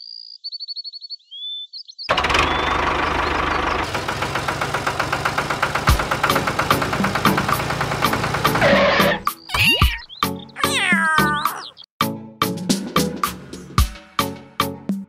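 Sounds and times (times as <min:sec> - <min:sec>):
small engine starting and knocking: 0:02.1 - 0:09.3
thin high chirps: 0:09.3 - 0:11.8.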